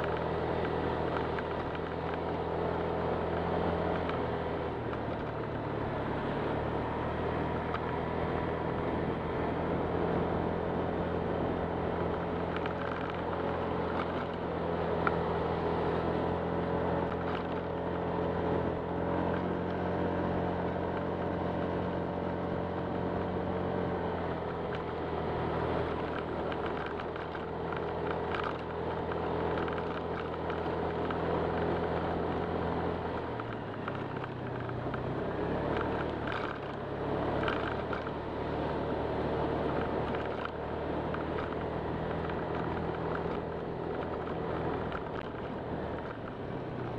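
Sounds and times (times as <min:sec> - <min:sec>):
scooter engine running: 0:00.0 - 0:46.9
wind and road noise: 0:00.0 - 0:46.9.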